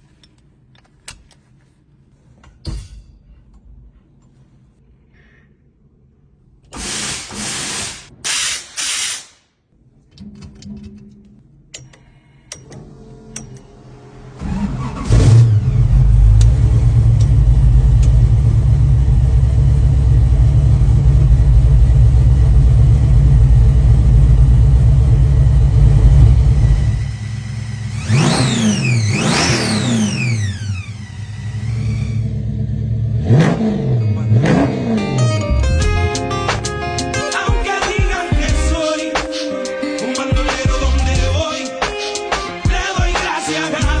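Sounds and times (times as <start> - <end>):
car engine rumbling and revving: 12.6 - 37.1.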